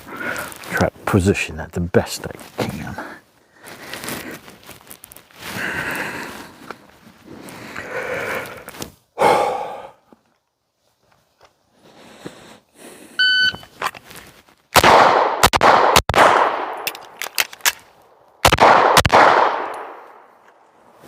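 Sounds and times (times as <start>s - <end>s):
shot timer beep: 13.2s - 13.7s
pistol shots with echo: 14.8s - 16.9s, 18.4s - 20.2s
magazine reload clicks: 16.7s - 17.9s, 19.6s - 20.0s.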